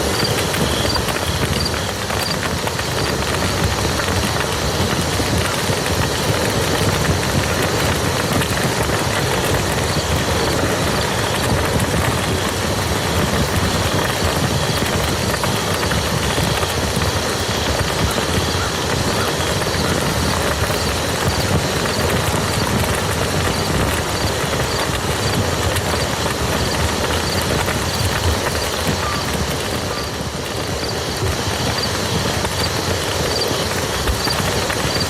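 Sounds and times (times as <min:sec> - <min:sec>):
rain hissing on field: 0:00.0 - 0:35.0.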